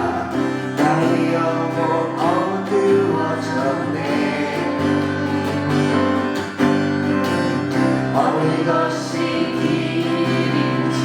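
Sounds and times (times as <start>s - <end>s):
person singing worship song: 0.0s - 6.8s, 7.7s - 11.0s
acoustic guitar strumming: 0.0s - 11.0s.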